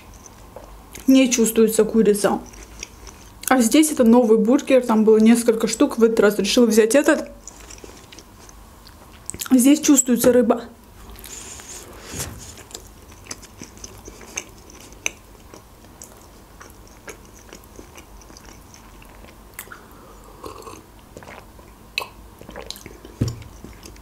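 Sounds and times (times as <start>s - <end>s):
wet chewing and mouth clicks: 2.2s - 4.2s, 7.1s - 9.5s, 12.6s - 19.9s, 20.5s - 24.0s.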